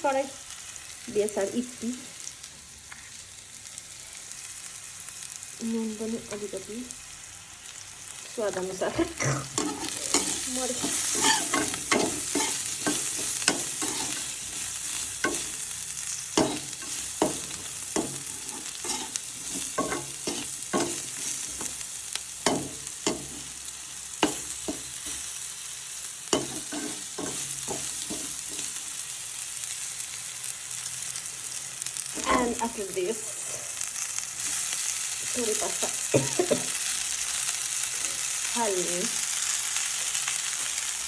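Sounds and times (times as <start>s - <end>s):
food sizzling in a wok: 0.0s - 41.0s
spoon clinking and scraping pan: 8.9s - 15.6s, 16.4s - 21.8s, 26.3s - 28.8s.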